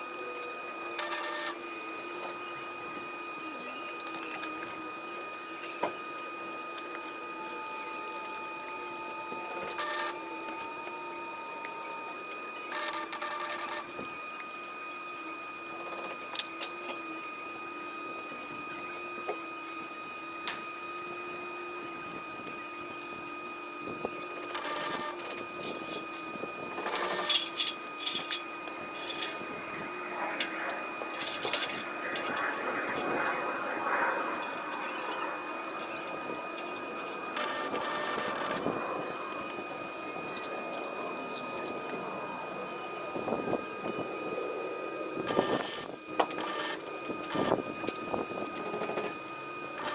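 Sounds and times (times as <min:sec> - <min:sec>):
steady high whine: 0:00.0 - 0:49.9
crackling welding arc: 0:26.8 - 0:38.7, 0:45.0 - 0:49.1, 0:49.7 - 0:49.9.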